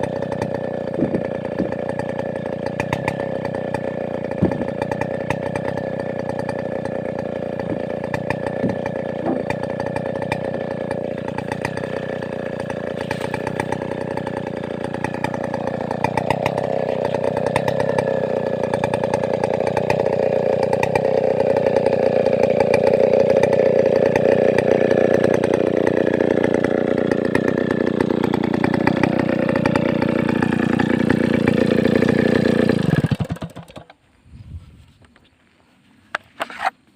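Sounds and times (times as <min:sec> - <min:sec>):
chainsaw running at high revs: 0:00.0 - 0:34.0.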